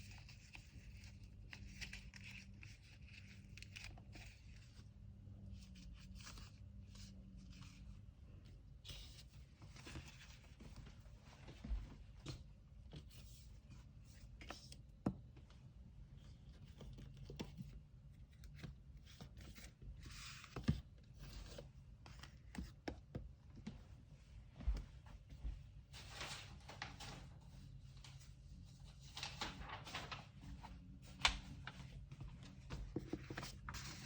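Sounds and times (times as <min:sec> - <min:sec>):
paper rubbing and rustling: 0:25.9 - 0:34.0.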